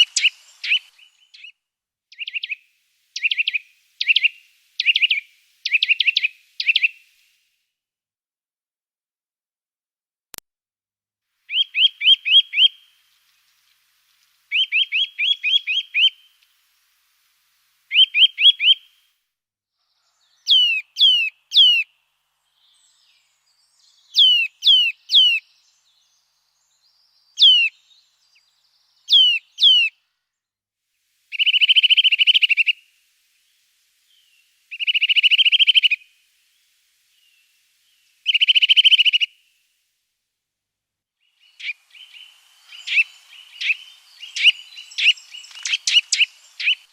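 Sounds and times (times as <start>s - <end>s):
songbird singing: 0.0s - 7.4s, 11.4s - 19.1s, 19.8s - 30.5s, 31.1s - 39.9s, 41.0s - 46.9s.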